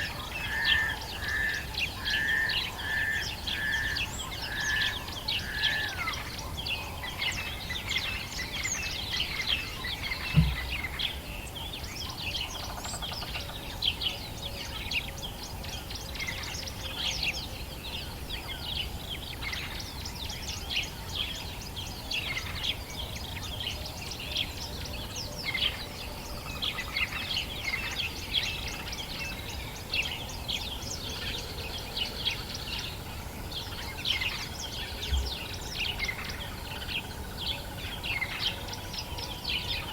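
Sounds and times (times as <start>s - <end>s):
low thump: 10.3s - 10.8s.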